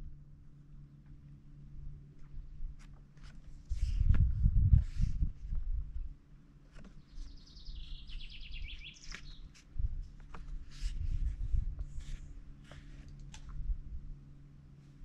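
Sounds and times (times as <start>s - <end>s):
low rumble: 3.6s - 6.2s
songbird trilling: 7.0s - 9.5s.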